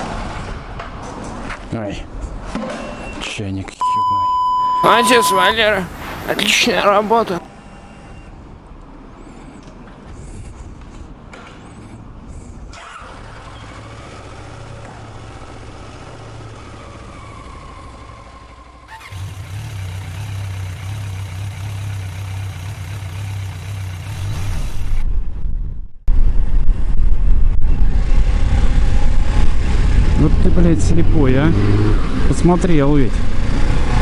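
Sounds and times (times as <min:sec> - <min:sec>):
vehicles passing: 0:04.7 - 0:25.1, 0:27.7 - 0:34.0
motorcycle engine running: 0:18.9 - 0:25.0
rumbling wind noise: 0:24.8 - 0:31.4.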